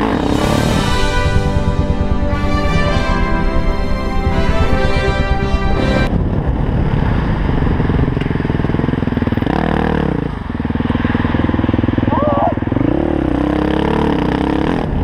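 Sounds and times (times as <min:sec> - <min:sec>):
background music: 0:00.0 - 0:06.1
motorcycle engine at low revs: 0:06.3 - 0:15.0.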